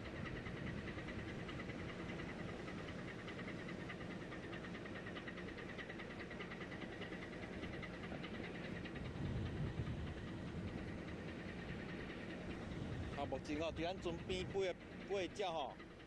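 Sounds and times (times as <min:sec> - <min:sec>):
ship engine rumble: 0:00.0 - 0:16.0.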